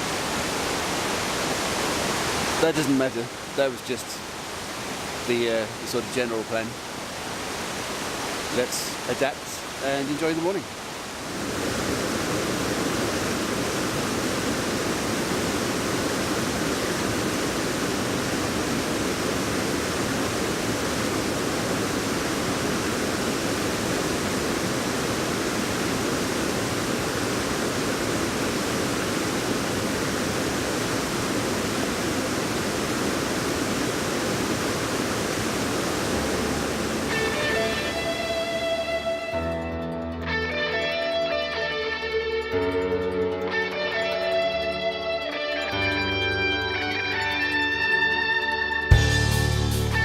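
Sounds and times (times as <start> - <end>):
waterfall roaring: 0.0 - 39.6.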